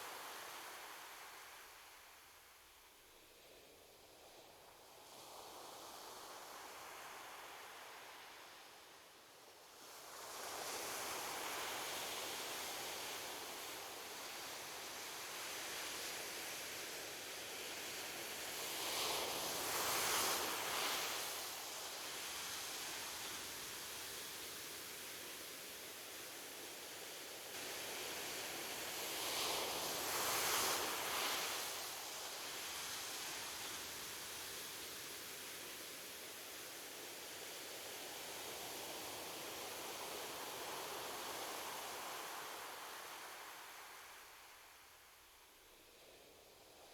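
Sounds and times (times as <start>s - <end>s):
ocean waves washing on beach: 28.2s - 34.4s.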